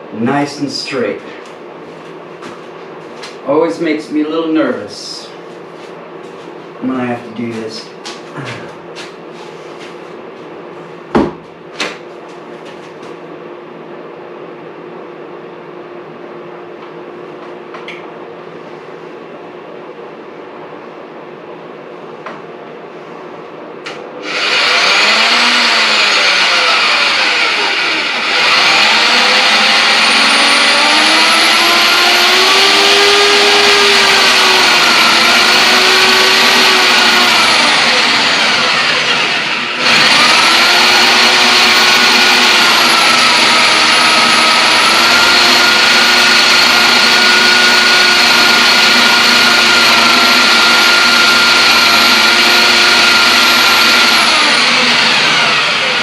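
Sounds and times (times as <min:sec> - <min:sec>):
electric drill boring into wood: 0:24.2 - 0:56.0.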